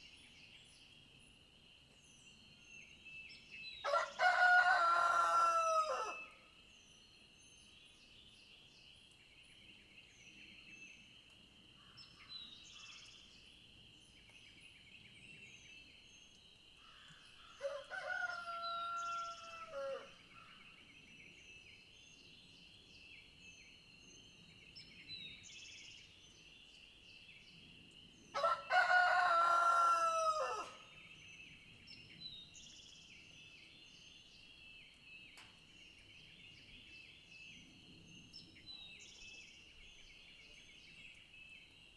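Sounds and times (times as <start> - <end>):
rooster crowing: 3.9 - 6.3, 17.6 - 20.1, 28.4 - 30.8.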